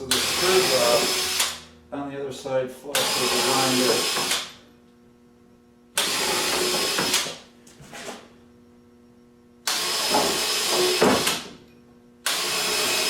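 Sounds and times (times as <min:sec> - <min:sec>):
grinder grinding screws: 0:00.0 - 0:01.6, 0:03.0 - 0:04.6, 0:06.0 - 0:07.4, 0:09.7 - 0:11.4, 0:12.2 - 0:13.0
faint steady hum: 0:00.0 - 0:12.3.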